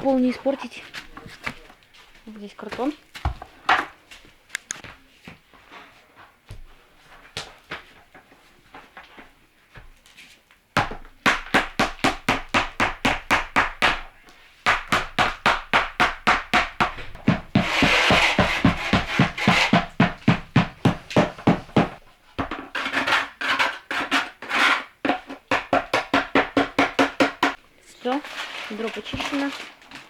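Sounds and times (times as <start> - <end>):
scraping: 16.9 - 25.5, 27.5 - 30.0.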